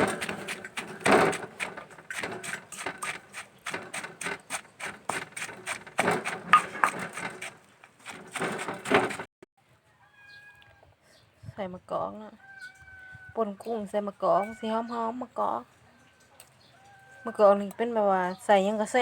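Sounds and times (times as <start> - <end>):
wooden knocks: 6.0 - 9.3.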